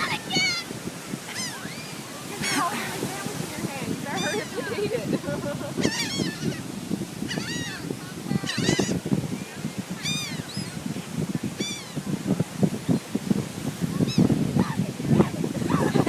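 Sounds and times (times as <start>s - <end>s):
gulls squawking: 0.0s - 9.0s.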